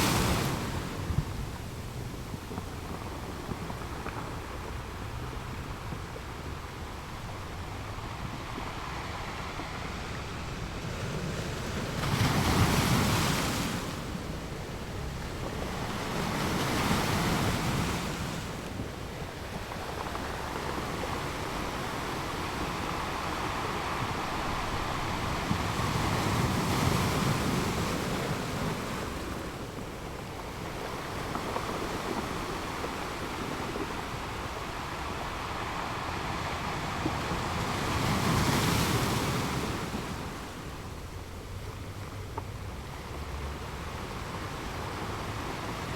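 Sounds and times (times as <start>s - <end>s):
ocean waves breaking: 5.5s - 41.6s.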